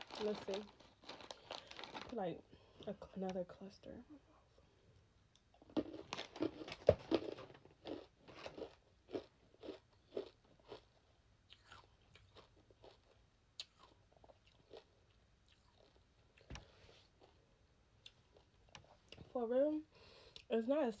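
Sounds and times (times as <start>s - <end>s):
mouth chewing crunchy candy: 5.5s - 17.4s.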